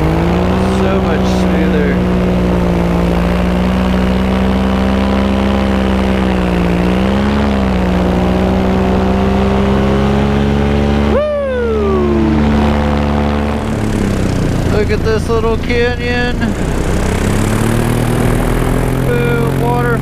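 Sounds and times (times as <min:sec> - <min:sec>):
paramotor engine and propeller: 0:00.0 - 0:20.0
high sliding tone: 0:09.6 - 0:19.6.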